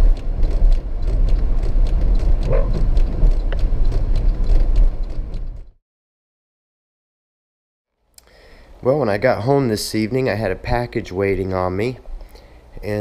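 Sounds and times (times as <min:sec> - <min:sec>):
sharp taps and clicks: 0:00.0 - 0:05.7
car road rumble: 0:00.0 - 0:05.8.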